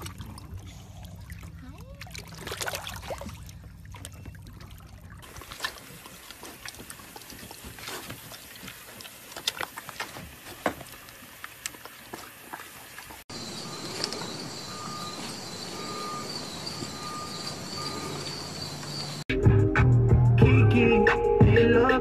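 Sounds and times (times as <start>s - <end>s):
low steady hum: 0.0s - 8.8s
wet clicks and small splashes: 0.0s - 13.2s
water lapping and sloshing: 0.0s - 19.2s.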